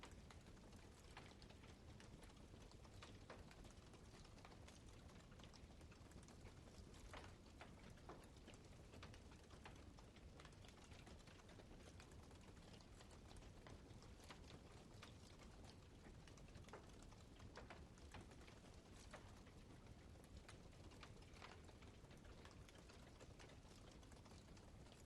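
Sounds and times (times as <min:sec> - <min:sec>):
fire popping and snapping: 0:00.0 - 0:25.0.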